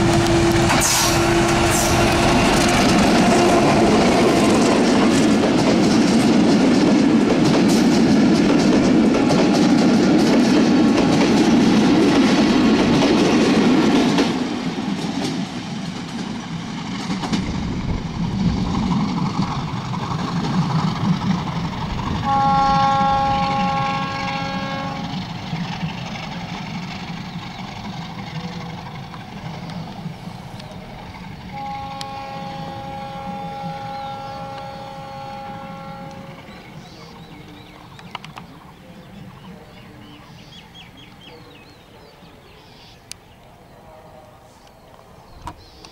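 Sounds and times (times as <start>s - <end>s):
train horn chord: 0.0s - 4.7s, 22.1s - 25.2s, 31.5s - 36.6s
train wheels clattering: 0.0s - 38.6s.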